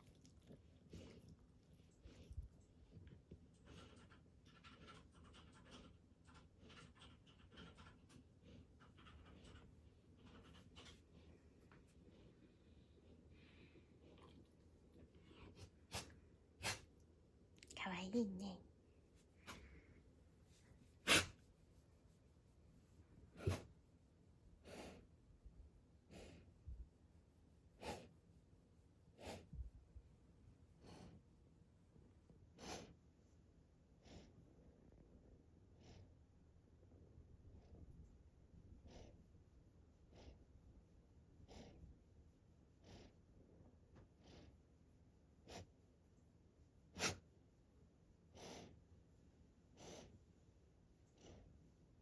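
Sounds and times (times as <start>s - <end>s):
dog huffing through its nose: 15.5s - 16.9s, 21.0s - 21.4s, 23.3s - 23.7s, 27.8s - 28.1s, 32.6s - 33.0s, 46.9s - 47.2s, 49.8s - 50.1s
dog breathing in noisy puffs: 48.3s - 48.8s.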